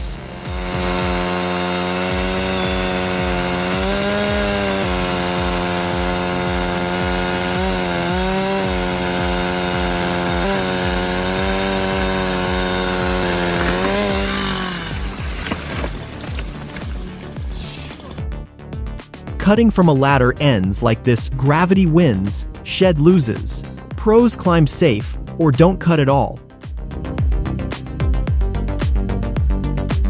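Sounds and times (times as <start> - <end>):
chainsaw running: 0.0 - 18.2, 19.4 - 29.2.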